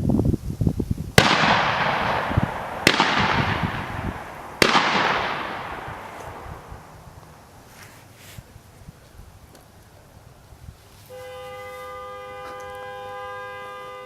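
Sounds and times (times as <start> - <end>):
shotgun blasts echoing: 1.2 - 7.2.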